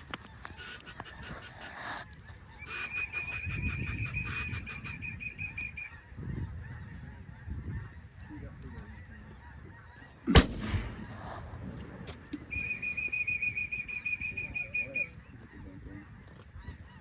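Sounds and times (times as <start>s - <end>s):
shotgun shot: 10.3s - 12.2s.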